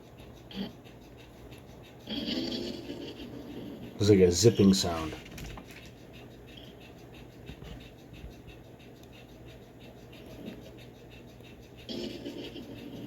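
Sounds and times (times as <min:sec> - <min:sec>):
steady low hum: 0:00.0 - 0:13.0
scratchy clicking and rustling: 0:04.3 - 0:13.0.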